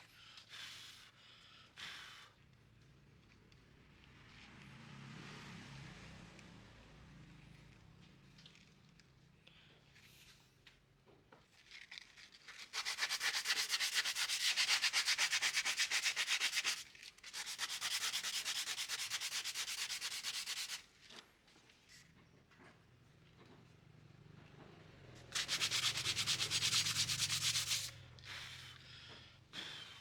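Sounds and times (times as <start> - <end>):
hand sanding wood: 12.7 - 20.9, 25.4 - 28.0.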